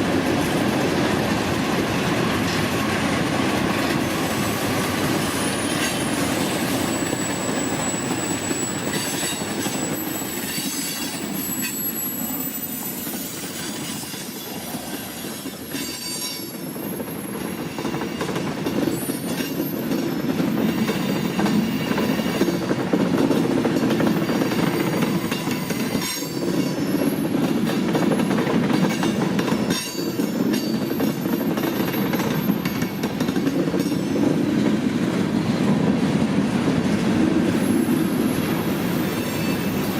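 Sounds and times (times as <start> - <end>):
freight train wheels rumbling: 0.0 - 39.9
wheel squeals: 5.2 - 17.5, 37.6 - 39.9.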